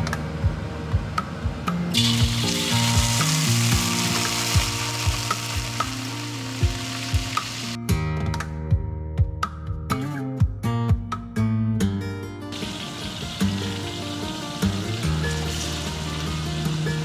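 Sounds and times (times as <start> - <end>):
guitar music: 0.0 - 17.0
paste sizzling in hot oil: 2.0 - 7.8, 12.6 - 17.0.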